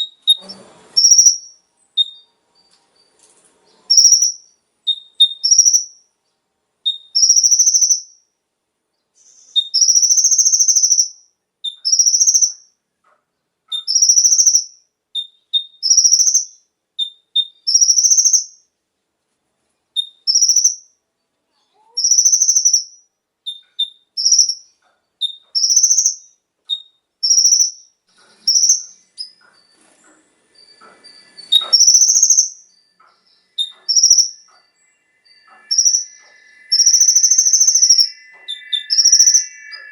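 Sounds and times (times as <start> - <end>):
sunbird high chirping song: 0.0 - 6.2, 6.8 - 12.8, 13.7 - 18.7, 19.8 - 39.9
short sharp bird notes: 33.3 - 39.9.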